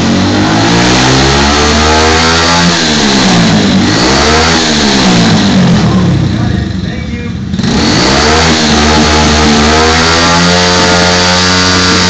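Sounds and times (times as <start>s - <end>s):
minibike engine revving: 0.0s - 12.0s.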